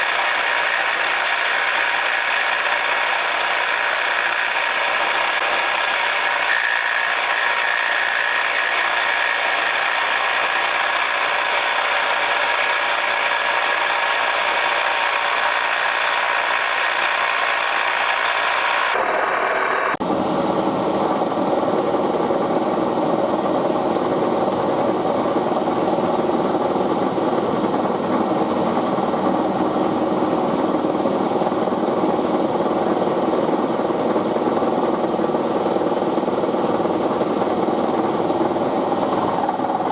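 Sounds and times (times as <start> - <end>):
milling machine cutting metal: 0.0 - 20.0.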